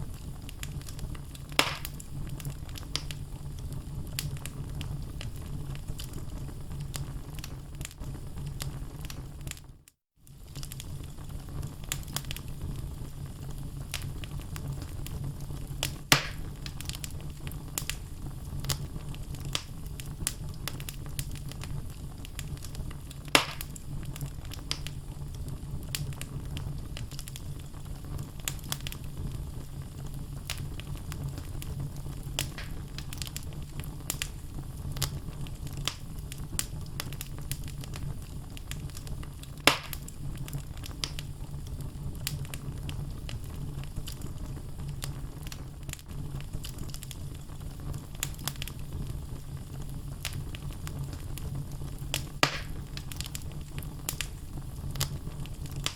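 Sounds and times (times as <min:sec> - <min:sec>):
fire crackling: 0:00.0 - 0:55.9
low rumble of flames: 0:00.0 - 0:55.9
sharp wood pops: 0:01.6 - 0:01.9, 0:16.1 - 0:16.4, 0:23.4 - 0:23.7, 0:32.5 - 0:32.8, 0:39.7 - 0:40.0, 0:52.4 - 0:52.8.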